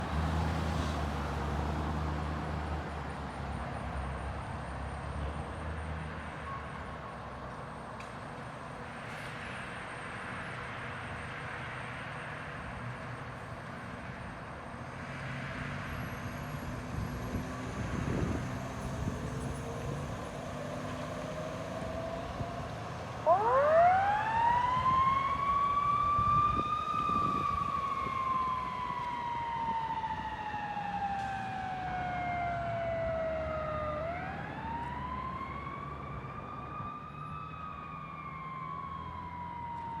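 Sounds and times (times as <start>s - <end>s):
traffic noise: 0.0s - 40.0s
emergency siren wailing: 16.5s - 40.0s.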